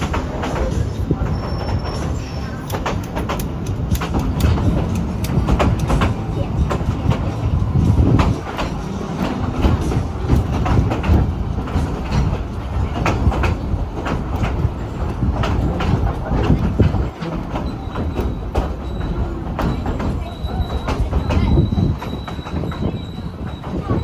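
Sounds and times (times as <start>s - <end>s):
high wheel squeal: 0.0s - 2.8s, 17.4s - 24.0s
train rumbling: 0.0s - 24.0s
wheels clacking on track: 0.0s - 24.0s.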